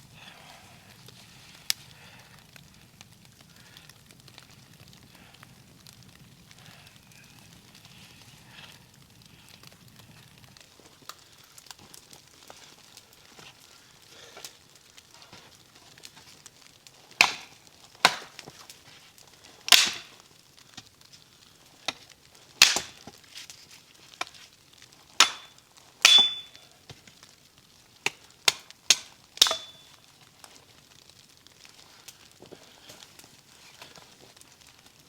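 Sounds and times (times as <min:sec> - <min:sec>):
axe chopping wood: 0:17.2 - 0:18.5, 0:19.7 - 0:20.1, 0:22.6 - 0:23.2, 0:25.2 - 0:26.5, 0:28.1 - 0:29.8
metallic ring: 0:26.1 - 0:26.6.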